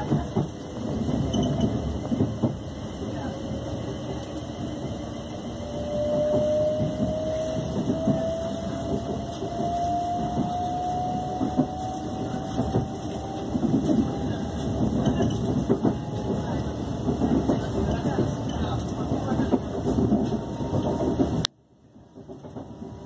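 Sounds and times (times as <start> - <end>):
train motor whine: 5.3 - 16.5.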